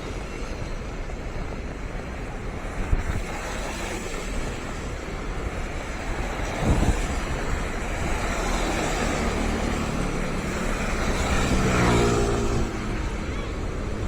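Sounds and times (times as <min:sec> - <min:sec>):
wind and rain hiss: 0:00.0 - 0:14.0
vehicle engine passing: 0:08.0 - 0:13.8.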